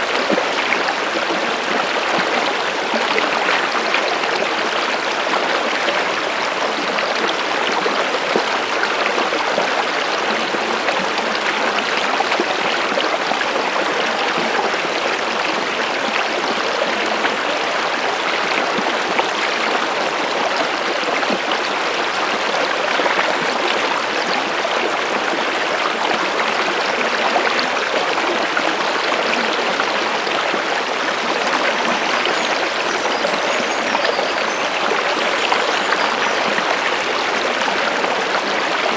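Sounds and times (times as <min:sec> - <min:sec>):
stream water running: 0:00.0 - 0:38.9.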